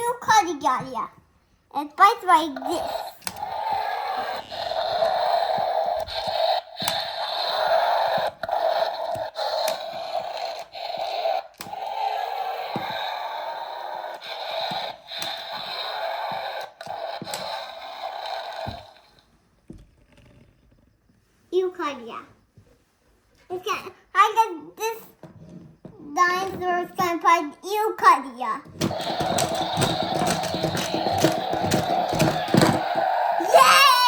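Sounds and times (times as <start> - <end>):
child hissing growling noise: 2.6 - 19.0, 29.2 - 34.0.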